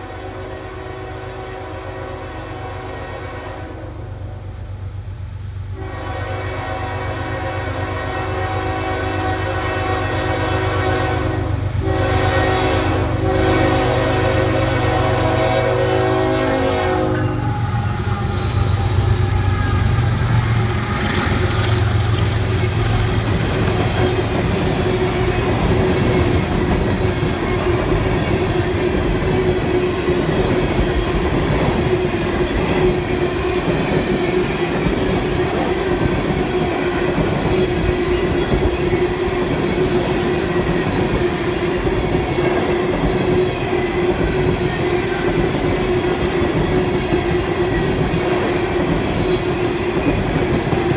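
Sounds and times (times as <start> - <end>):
train horn: 0.0 - 4.6, 5.7 - 46.4
locomotive engines passing: 13.4 - 50.9
train wheels clattering: 16.4 - 50.9.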